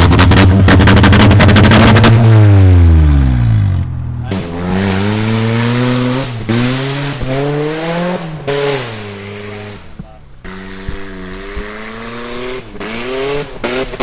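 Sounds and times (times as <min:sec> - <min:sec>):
car engine revving: 0:00.0 - 0:14.0
gear change: 0:03.1 - 0:14.0.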